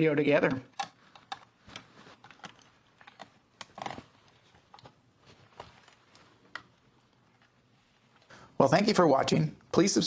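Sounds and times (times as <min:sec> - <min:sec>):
small clicks of radio parts handled: 0:00.5 - 0:08.3.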